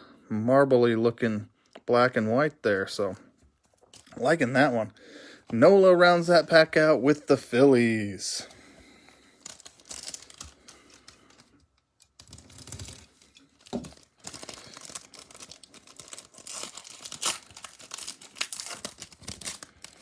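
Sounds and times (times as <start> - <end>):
foil wrapper tearing and crinkling: 9.3 - 20.0.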